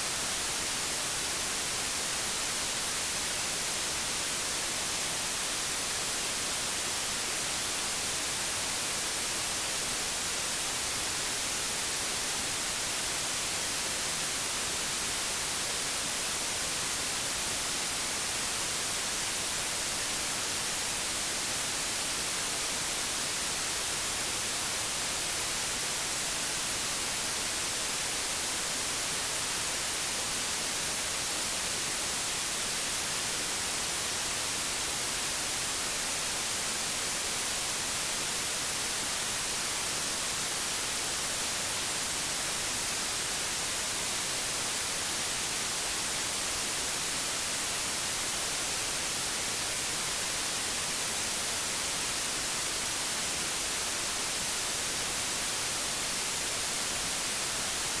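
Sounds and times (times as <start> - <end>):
television static hiss: 0.0 - 58.0.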